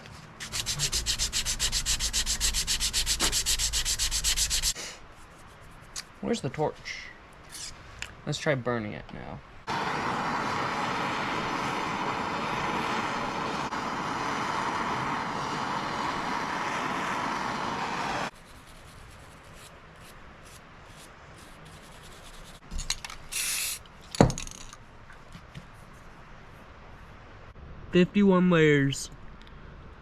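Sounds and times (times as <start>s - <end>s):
torch roaring hiss: 9.7s - 18.3s.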